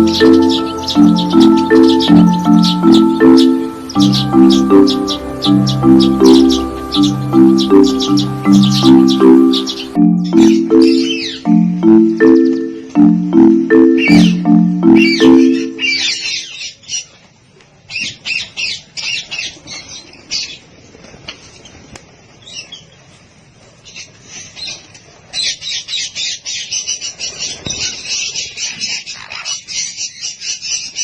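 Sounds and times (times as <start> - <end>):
flock of birds squawking: 0.0 - 11.4.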